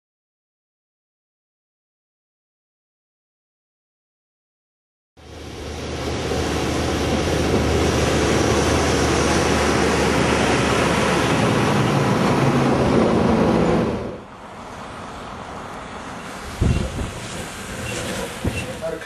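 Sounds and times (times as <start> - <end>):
engine running: 5.2 - 19.0
loud rushing noise: 5.2 - 19.0.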